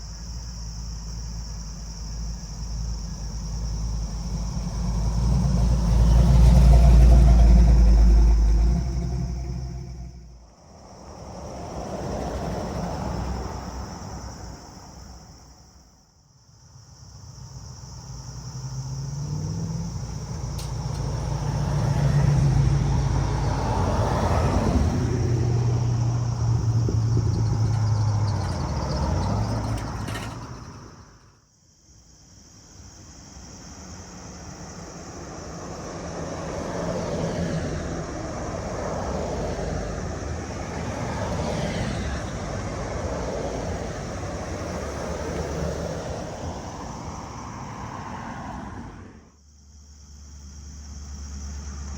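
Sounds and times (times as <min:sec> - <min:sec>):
car driving past: 0:03.0 - 0:15.4, 0:17.4 - 0:31.4, 0:34.1 - 0:49.4
vehicle engine running: 0:25.8 - 0:31.2.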